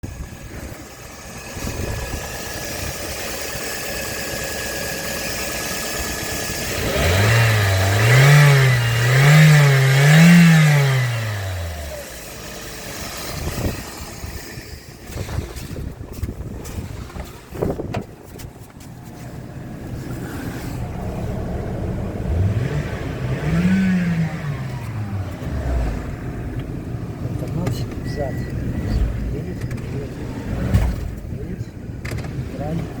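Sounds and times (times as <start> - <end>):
car engine idling and revving: 0.0 - 33.0.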